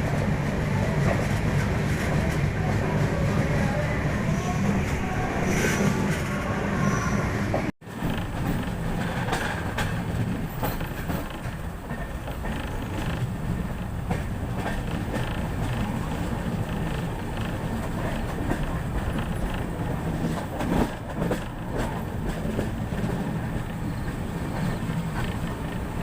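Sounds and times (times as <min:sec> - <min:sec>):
train rumbling: 0:00.0 - 0:26.0
wheels clacking over rail joints: 0:07.5 - 0:26.0.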